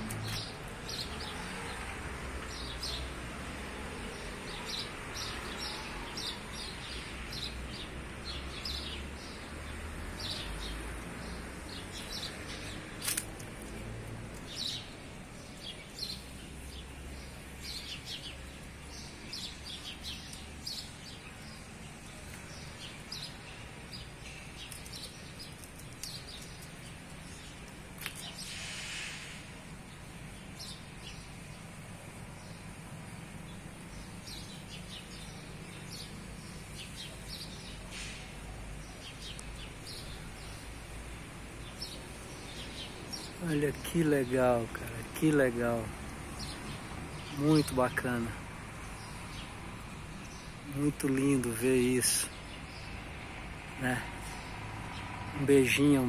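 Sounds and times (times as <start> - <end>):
low city hum: 0.0 - 56.0
small birds chirping: 0.0 - 56.0
sharp click: 13.0 - 13.5.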